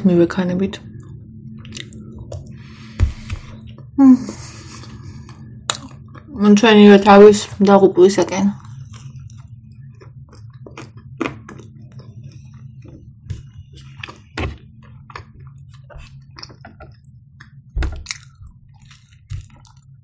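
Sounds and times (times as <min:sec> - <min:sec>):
person chewing food: 0:01.6 - 0:03.9, 0:04.5 - 0:06.3, 0:08.6 - 0:20.0.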